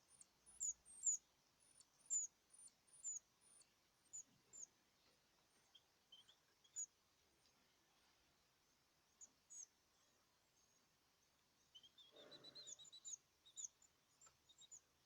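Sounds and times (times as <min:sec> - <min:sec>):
caged birds chirping: 0:00.0 - 0:15.0
soft rustle: 0:04.3 - 0:08.6.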